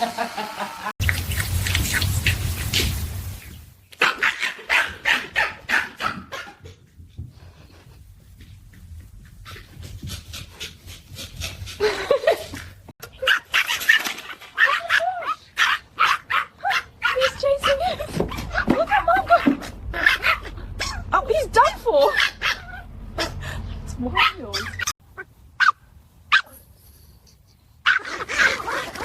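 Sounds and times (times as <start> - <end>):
dog barking: 4.0 - 6.6, 14.6 - 17.8, 24.2 - 24.9.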